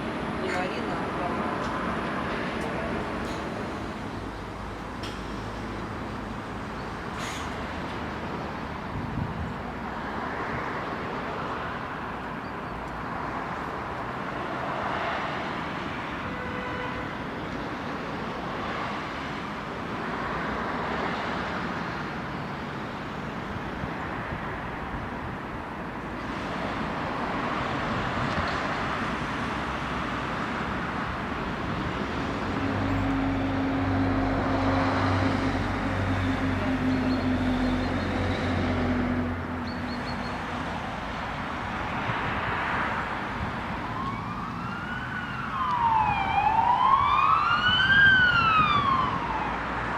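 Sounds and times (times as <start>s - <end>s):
cars passing: 0.0s - 49.9s.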